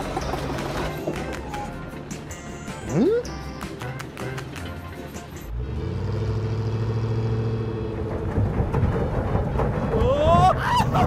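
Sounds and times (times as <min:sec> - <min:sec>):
vehicle engine running: 0:05.4 - 0:10.0.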